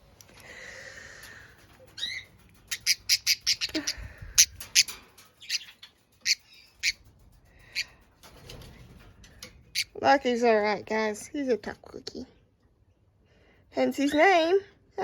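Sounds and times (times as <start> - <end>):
budgerigar squawking: 2.0 - 4.9.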